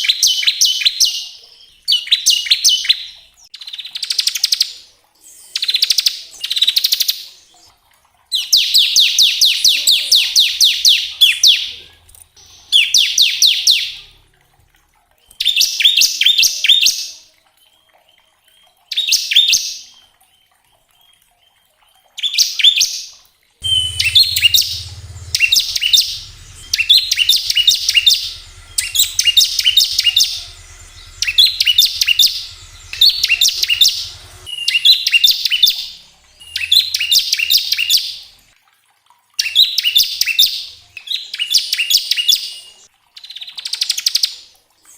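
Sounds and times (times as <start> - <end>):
bird singing rapid trill: 12.4 - 14.3, 23.6 - 38.3.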